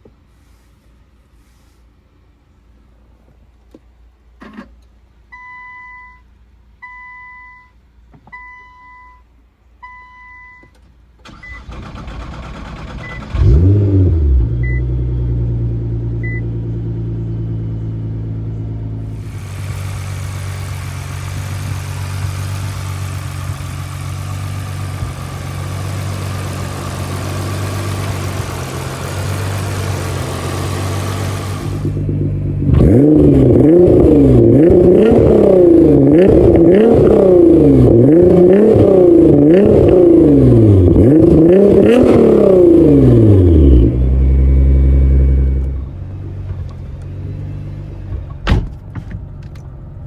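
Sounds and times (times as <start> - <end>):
car engine starting and idling: 10.7 - 50.0.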